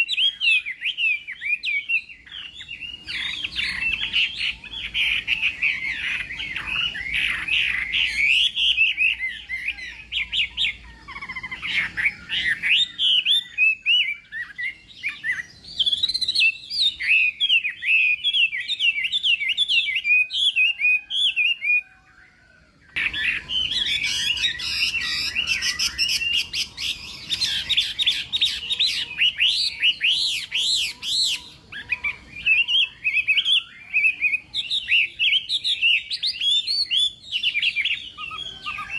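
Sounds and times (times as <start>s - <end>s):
songbird whistling and trilling: 0.0s - 38.9s.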